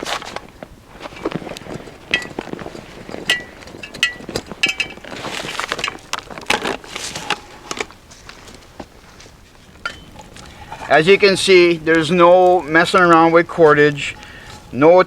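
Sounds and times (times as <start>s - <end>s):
branches rustling: 0.0s - 15.0s
metal pot clinking: 2.1s - 7.8s, 9.7s - 14.8s.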